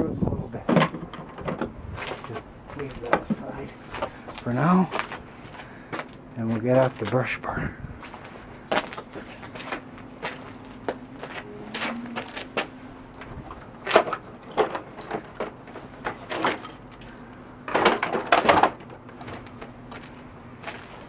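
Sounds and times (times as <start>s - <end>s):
vacuum cleaner plastic knocks and rattles: 17.7s - 19.5s
plastic clatter: 17.7s - 19.7s.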